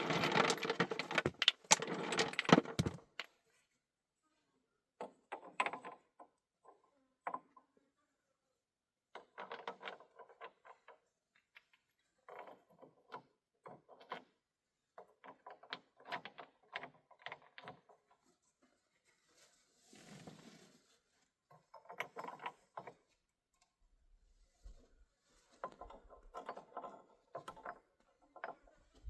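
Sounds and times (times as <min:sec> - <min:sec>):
hard objects knocking and clattering: 0:00.0 - 0:03.3, 0:25.6 - 0:29.0.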